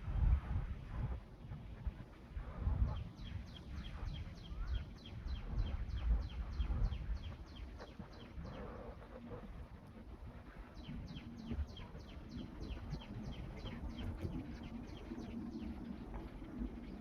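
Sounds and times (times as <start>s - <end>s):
steady hum: 0.0s - 17.0s
bird chirping: 10.4s - 17.0s.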